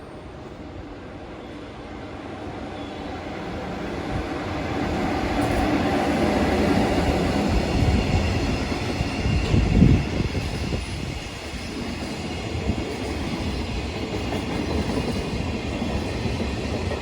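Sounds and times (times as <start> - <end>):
train wheels rumbling on rails: 2.4 - 17.0.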